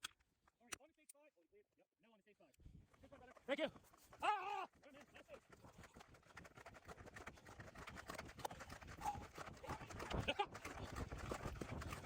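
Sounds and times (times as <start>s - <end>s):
footsteps walking briskly: 2.7s - 12.0s.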